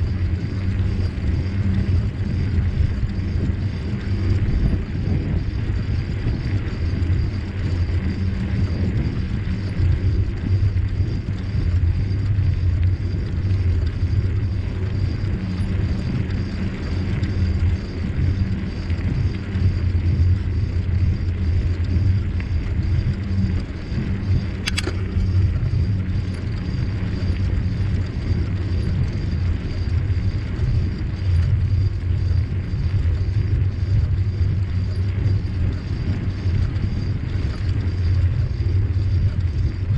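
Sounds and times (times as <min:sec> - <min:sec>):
bicycle tyres rolling on trail: 0:00.0 - 0:39.9
wind buffeting microphone: 0:00.0 - 0:39.9
sharp click: 0:24.6 - 0:25.1.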